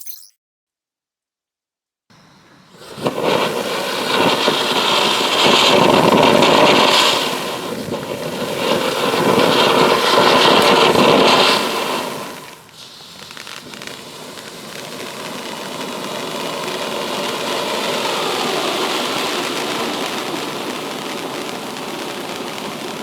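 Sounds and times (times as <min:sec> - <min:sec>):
firework fountain hissing and crackling: 0:02.1 - 0:23.0.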